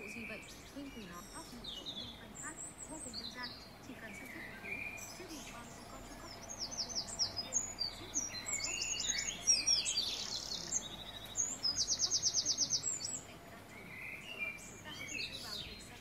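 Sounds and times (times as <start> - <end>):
rapid bird trill: 0.0 - 16.0
songbirds chirping: 0.0 - 16.0.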